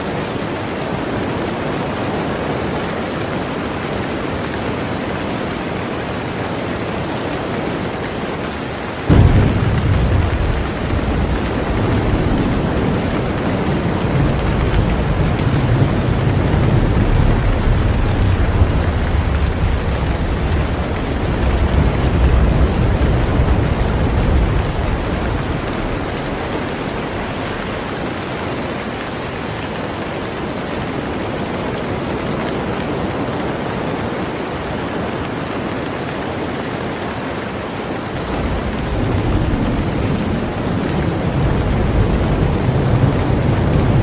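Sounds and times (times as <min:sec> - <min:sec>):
heavy rain on a boat: 0:00.0 - 0:44.0
low rumble: 0:09.1 - 0:28.1.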